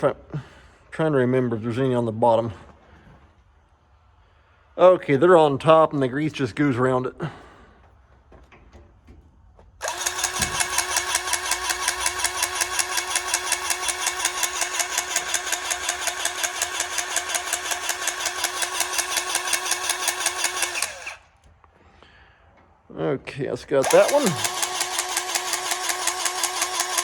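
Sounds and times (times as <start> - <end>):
powered grease gun whining: 9.8 - 21.5, 23.7 - 27.0.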